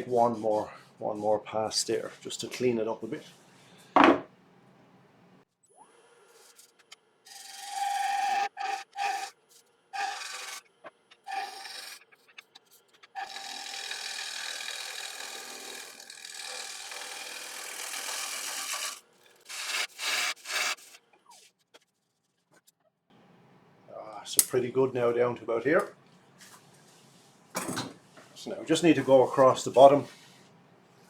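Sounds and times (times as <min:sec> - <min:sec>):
lathe gouge scraping wood: 0:07.3 - 0:09.3, 0:10.0 - 0:10.6, 0:11.3 - 0:12.0, 0:13.2 - 0:21.0.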